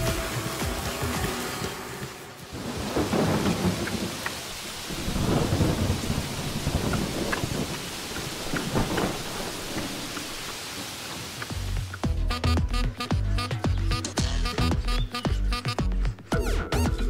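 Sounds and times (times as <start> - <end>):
heavy rain: 0.0 - 14.0
thunder rolling: 2.5 - 10.5.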